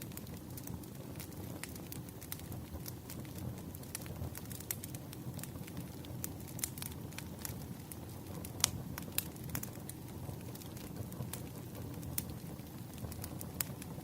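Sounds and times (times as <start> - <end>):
campfire crackling and popping: 0.0 - 14.0
low rush of flame: 0.0 - 14.0.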